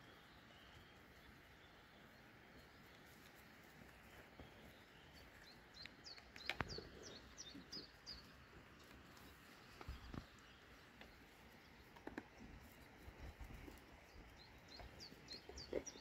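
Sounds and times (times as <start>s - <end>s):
bird chirping: 4.1s - 16.0s.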